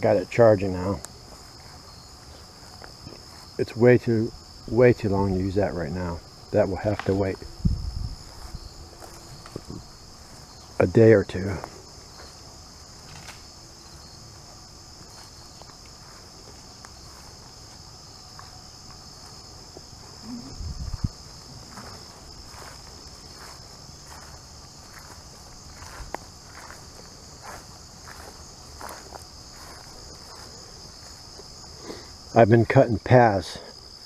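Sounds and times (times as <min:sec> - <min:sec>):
crickets and insects chirping: 0:00.0 - 0:34.0
footsteps through grass: 0:00.6 - 0:03.8, 0:06.8 - 0:32.2.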